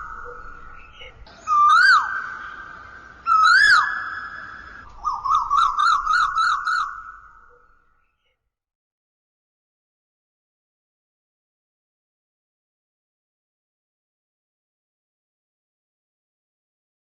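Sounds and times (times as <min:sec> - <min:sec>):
whistled bird-like calls: 0:00.0 - 0:08.3.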